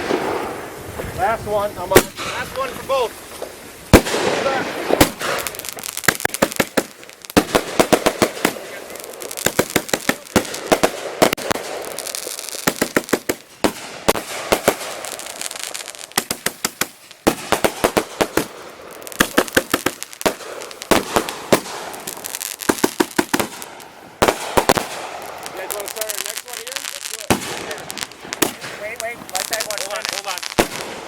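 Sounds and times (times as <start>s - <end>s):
firework crackle: 0.0s - 31.0s
fireworks banging: 0.0s - 31.0s.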